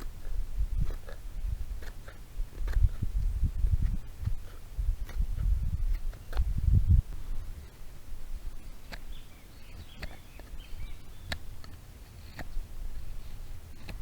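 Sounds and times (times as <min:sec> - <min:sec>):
steady low rumble: 0:00.0 - 0:09.2
small bird chirping: 0:08.5 - 0:11.7.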